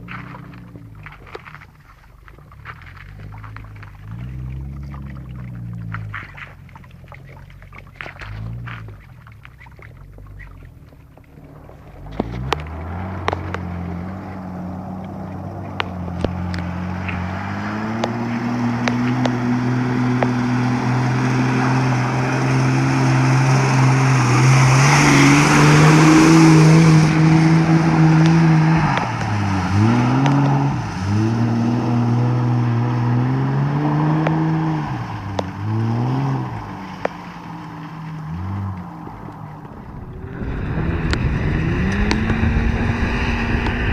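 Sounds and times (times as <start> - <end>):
tyres spraying water: 0.0 - 43.9
car engine revving hard: 12.0 - 43.9.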